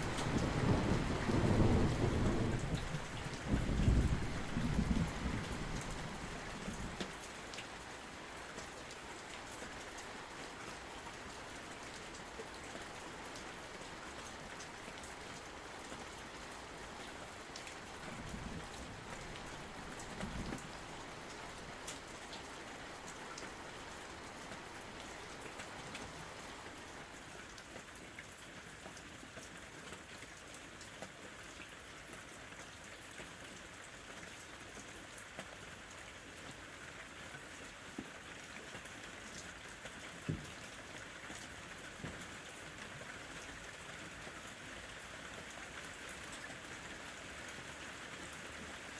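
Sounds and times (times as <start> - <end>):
low thunder rumble: 0.0 - 7.0, 17.8 - 22.2
steady rain: 0.0 - 48.9.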